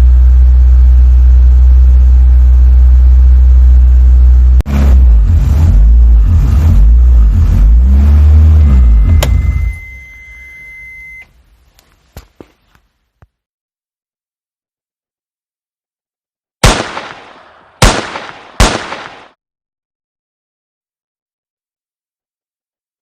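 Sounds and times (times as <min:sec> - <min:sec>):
race car engine revving: 0:00.0 - 0:10.0
steady high beep: 0:08.6 - 0:11.3.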